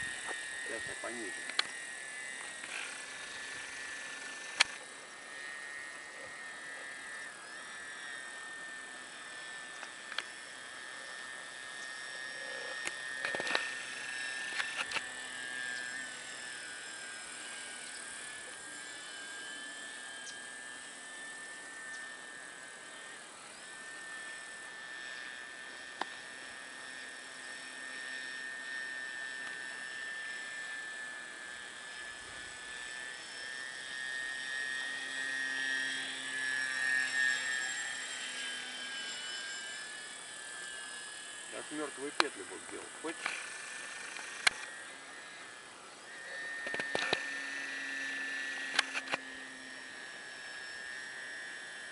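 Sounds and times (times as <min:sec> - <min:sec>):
model airplane motor whine: 0:00.0 - 0:51.9
sharp clicks: 0:43.1 - 0:44.7, 0:48.7 - 0:49.2.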